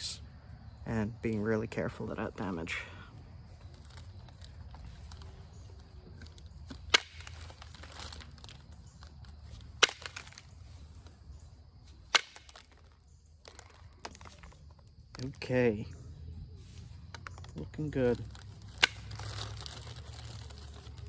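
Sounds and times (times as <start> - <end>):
stone flakes cracking off: 18.3 - 21.0.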